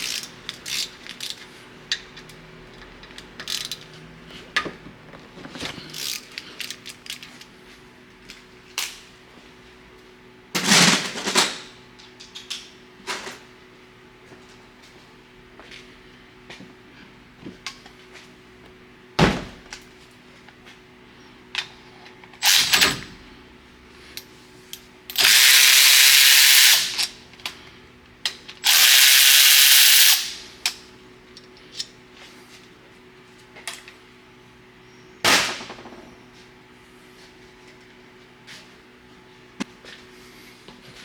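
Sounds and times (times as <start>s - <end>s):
pneumatic air tool hissing: 25.2s - 27.0s, 28.6s - 30.5s.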